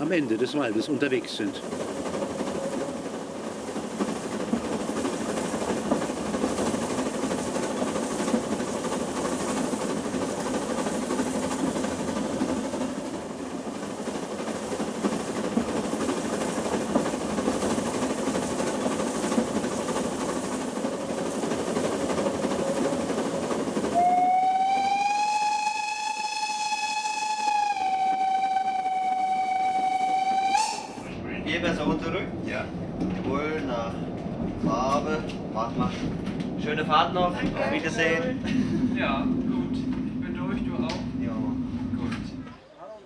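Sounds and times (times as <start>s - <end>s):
steam train rumbling: 0.0s - 42.5s
steam whistle: 23.9s - 31.0s.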